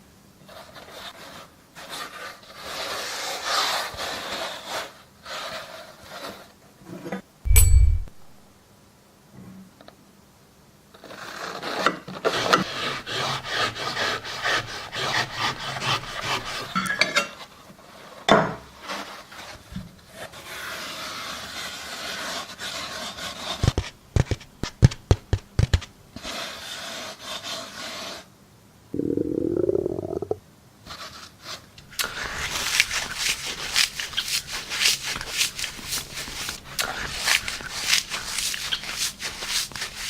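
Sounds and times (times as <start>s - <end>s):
scraping and rasping: 11.0s - 16.8s, 30.9s - 40.0s.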